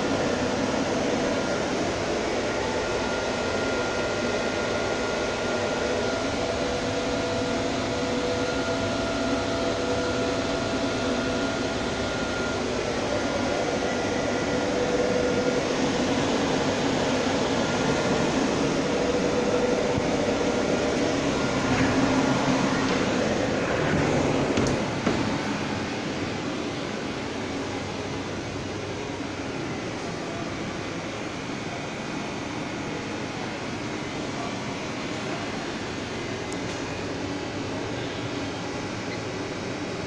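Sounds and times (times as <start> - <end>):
lathe humming: 0.0 - 31.4
faint machine whine: 0.0 - 40.0.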